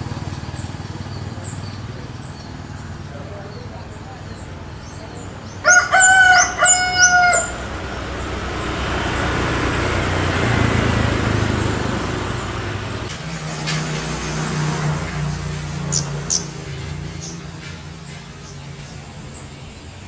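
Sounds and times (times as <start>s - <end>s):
vehicle passing by: 0.0s - 20.0s
rooster crowing: 5.6s - 7.9s.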